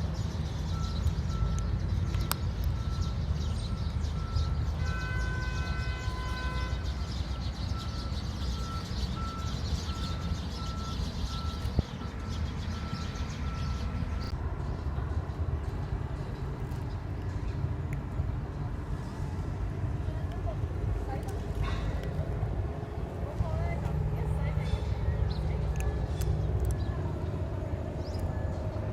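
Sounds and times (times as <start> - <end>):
low engine and traffic rumble: 0.0 - 28.9
vehicle reversing alarm beeping: 0.7 - 4.8, 5.6 - 14.3
multi-tone horn: 4.8 - 7.0.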